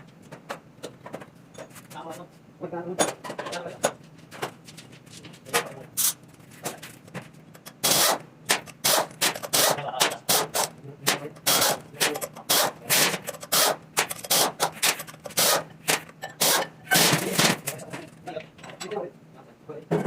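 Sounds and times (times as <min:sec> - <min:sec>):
tools and metal parts clanking: 0:08.6 - 0:10.3, 0:11.1 - 0:19.1.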